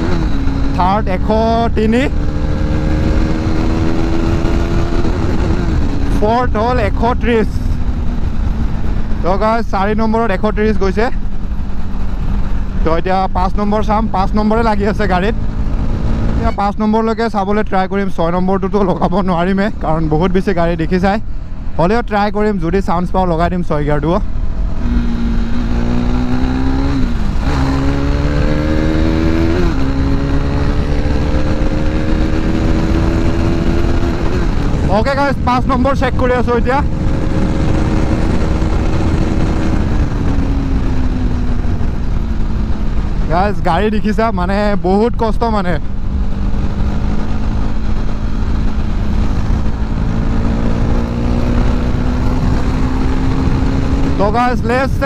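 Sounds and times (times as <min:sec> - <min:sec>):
motorcycle engine accelerating: 0:00.0 - 0:55.0
wind rush: 0:24.2 - 0:55.0.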